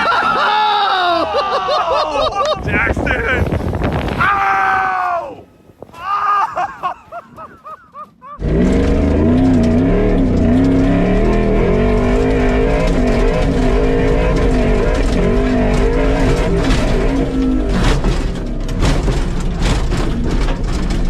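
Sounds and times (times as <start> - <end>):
pickup engine running at high revs: 8.4 - 21.0.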